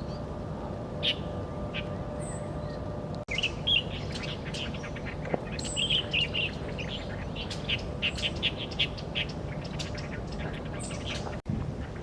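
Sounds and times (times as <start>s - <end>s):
low outdoor rumble: 0.0s - 12.0s
birds chirping: 1.0s - 12.0s.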